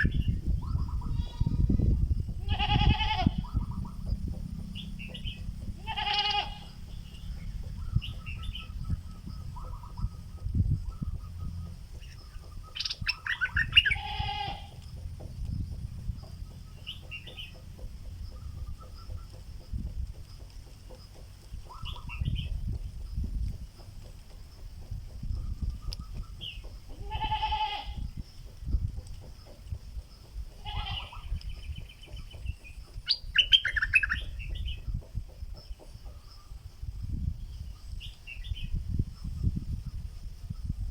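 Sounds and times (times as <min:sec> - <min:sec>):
bulbul chattering calls: 0:00.0 - 0:14.8, 0:15.6 - 0:28.7, 0:29.3 - 0:39.3.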